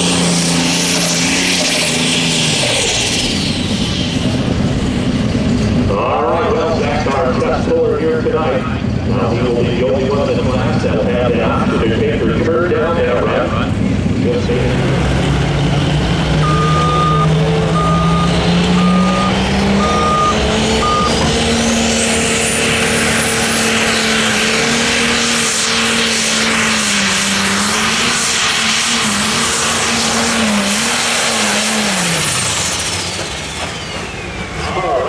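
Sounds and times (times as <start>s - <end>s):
diesel engine working under load: 0.0s - 35.0s
high turbo whine: 0.0s - 35.0s
short beeps: 16.4s - 21.3s.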